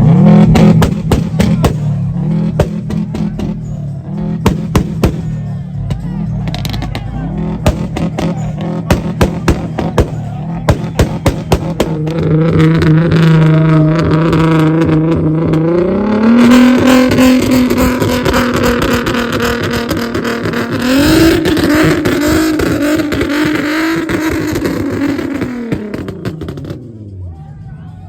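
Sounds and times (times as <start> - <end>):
car engine revving: 0.0 - 27.4.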